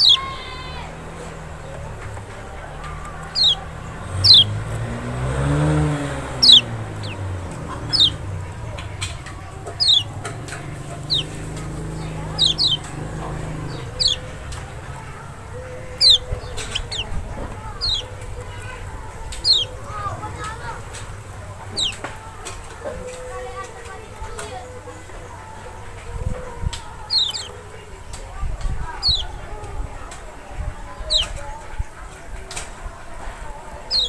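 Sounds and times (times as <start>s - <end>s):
bird call notes: 0.0s - 22.1s, 26.8s - 28.1s, 29.0s - 29.4s, 31.0s - 31.4s.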